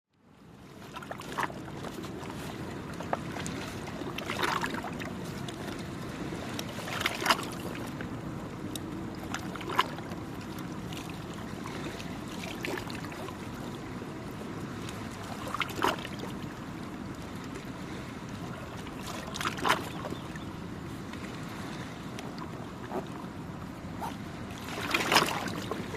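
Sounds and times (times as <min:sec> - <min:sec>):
small waves lapping on shore: 0:00.2 - 0:25.9.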